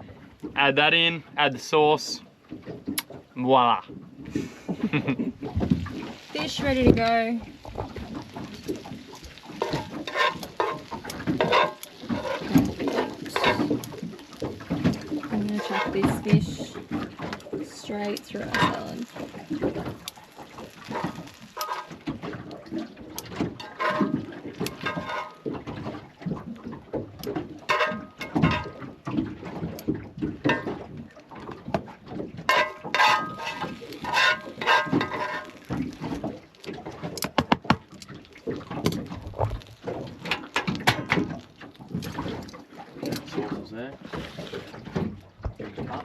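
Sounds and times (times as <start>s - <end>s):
utensils knocking and scraping: 9.6s - 13.9s, 23.6s - 25.4s, 27.7s - 28.8s, 32.5s - 36.2s.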